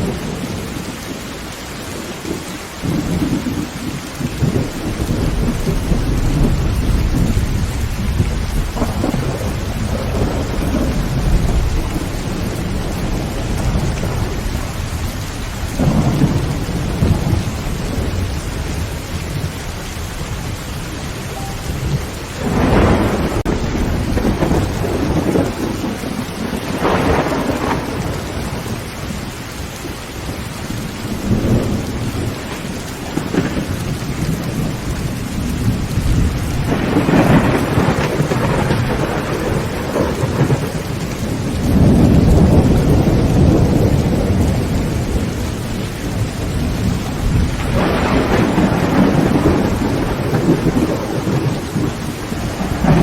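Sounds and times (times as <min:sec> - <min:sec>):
heavy rain on a tin roof: 0:00.0 - 0:53.0
thunder rumbling: 0:01.8 - 0:53.0.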